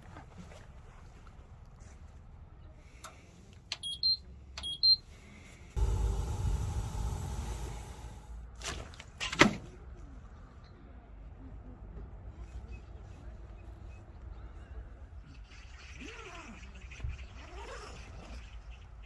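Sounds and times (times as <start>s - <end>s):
heater blower and burner whoosh: 5.8s - 8.5s.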